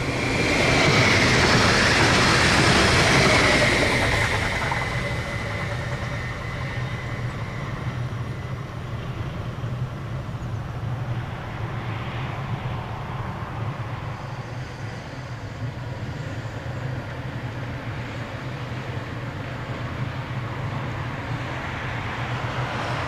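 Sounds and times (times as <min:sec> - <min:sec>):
train wheel noise: 0:00.0 - 0:11.5
low train rumble: 0:00.0 - 0:23.0.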